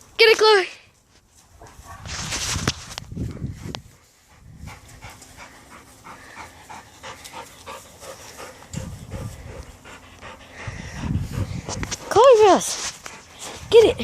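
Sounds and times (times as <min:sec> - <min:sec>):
dog panting: 0:03.3 - 0:14.0.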